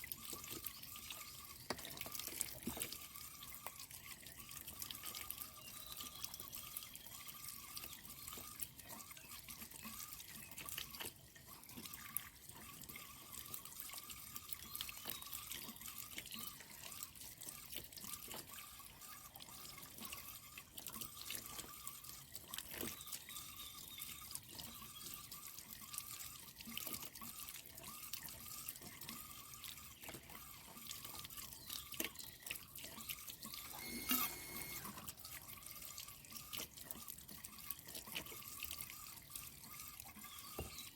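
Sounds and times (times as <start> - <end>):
small splashes and clicks: 0.0 - 40.9
water trickling and dripping: 0.0 - 40.9.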